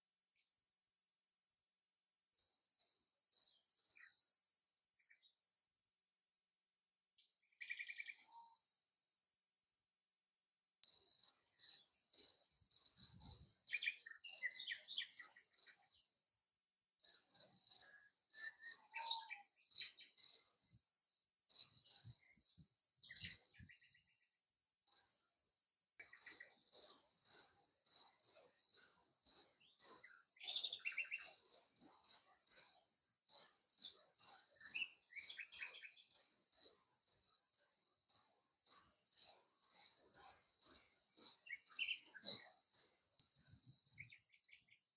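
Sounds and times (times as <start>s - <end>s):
crickets chirping: 2.4s - 4.6s, 10.8s - 16.0s, 17.0s - 23.8s, 24.9s - 25.3s, 26.0s - 44.7s
songbird calls: 3.4s - 4.3s, 7.5s - 8.7s, 10.8s - 16.1s, 17.0s - 20.5s, 21.5s - 24.2s, 26.0s - 32.8s, 33.4s - 37.3s, 38.7s - 44.9s.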